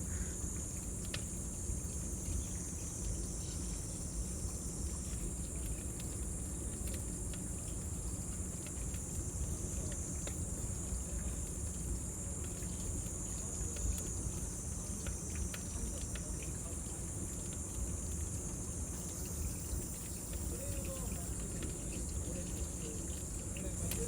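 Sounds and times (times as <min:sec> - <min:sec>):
cicadas droning: 0:00.0 - 0:24.0.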